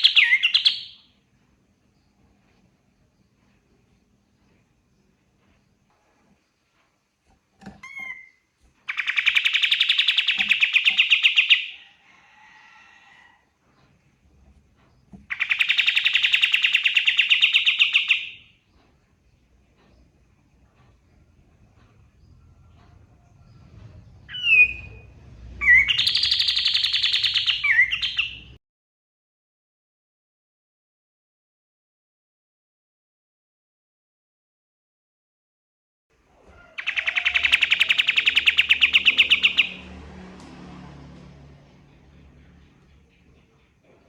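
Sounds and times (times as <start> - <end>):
bird rapid trill: 0.0 - 1.1, 7.8 - 11.8, 15.3 - 18.5, 25.6 - 28.5, 36.6 - 39.8
songbird singing: 0.0 - 1.2, 7.8 - 11.9, 14.8 - 28.6, 36.5 - 39.9.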